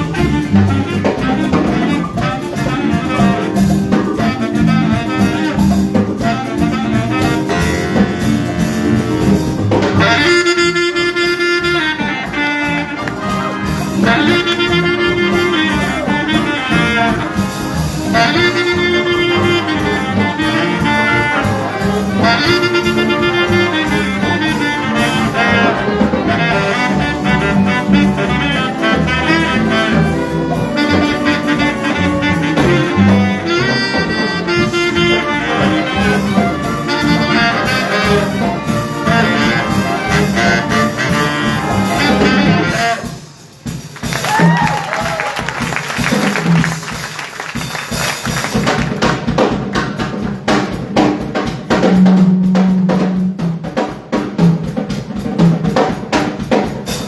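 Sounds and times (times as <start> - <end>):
horns playing held chords: 0.0 - 43.3
jazz big band playing: 0.0 - 57.0.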